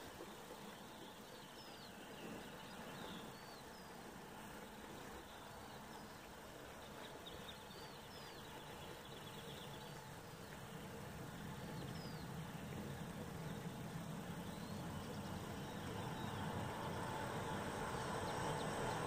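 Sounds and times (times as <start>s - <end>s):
small birds chirping: 0.2s - 19.0s
distant train rumble: 10.8s - 19.0s.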